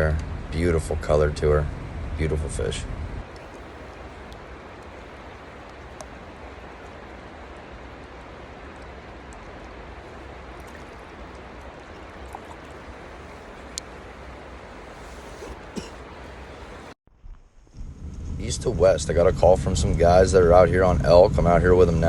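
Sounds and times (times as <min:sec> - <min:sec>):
stream water rushing: 0:03.2 - 0:17.0
faint ticks: 0:03.3 - 0:17.0.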